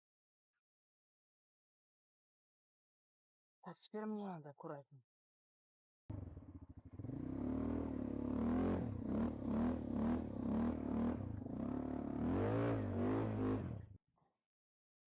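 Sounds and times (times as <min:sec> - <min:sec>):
quad bike engine revving: 0:06.1 - 0:14.0.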